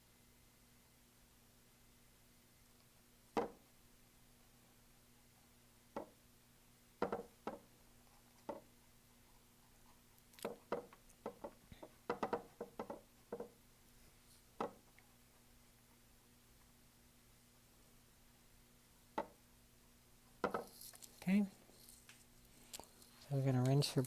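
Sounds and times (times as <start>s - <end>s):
paintbrush tapping on canvas: 7.0s - 7.6s, 10.4s - 13.6s.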